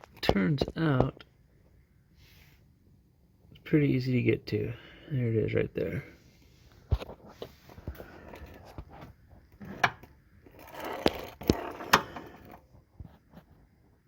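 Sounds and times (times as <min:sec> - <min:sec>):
handling clicks and scrapes: 0:06.7 - 0:14.0.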